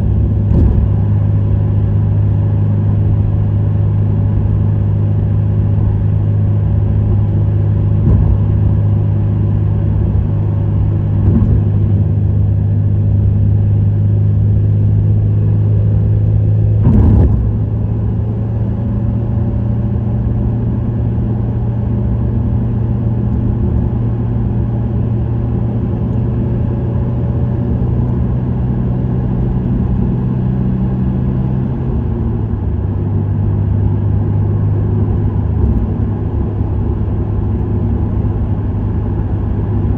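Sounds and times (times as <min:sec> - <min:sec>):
car engine and exhaust drone: 0:00.0 - 0:39.9
brief thump: 0:00.5 - 0:01.0, 0:08.0 - 0:08.7, 0:11.1 - 0:12.2, 0:16.7 - 0:18.6.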